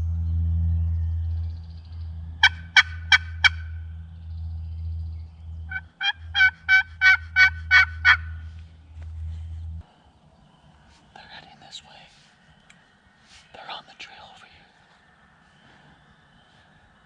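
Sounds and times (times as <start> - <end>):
low rumble: 0.0 - 10.8
turkey call yelps: 2.4 - 3.8, 5.7 - 8.5.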